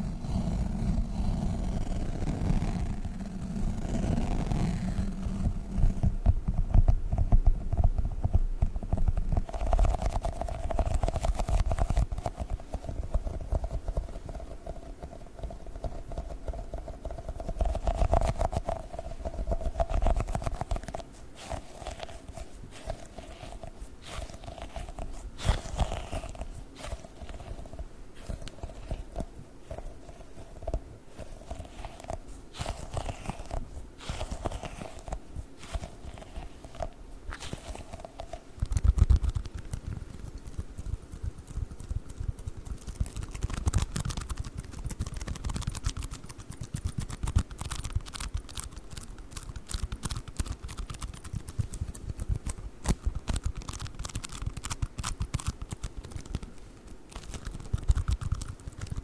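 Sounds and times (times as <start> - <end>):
sticky toys squished and peeled: 17.2 - 59.0
foam beads crackling: 18.8 - 38.4.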